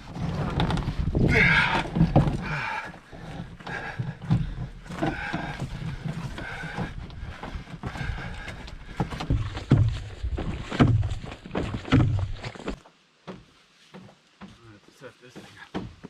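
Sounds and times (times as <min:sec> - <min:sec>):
carried canoe knocking and rattling: 0:00.0 - 0:16.0
footsteps on forest trail: 0:00.9 - 0:16.0.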